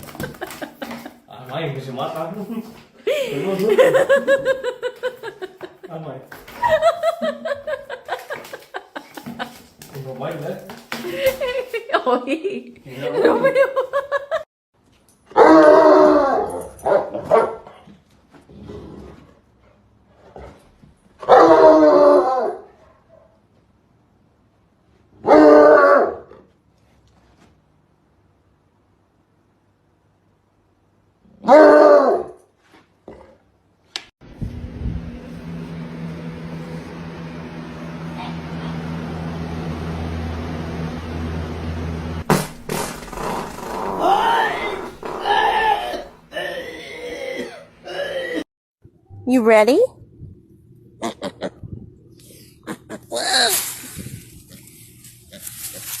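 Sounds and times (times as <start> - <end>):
dog howling: 43.4 - 46.3
low electrical hum: 48.9 - 56.0.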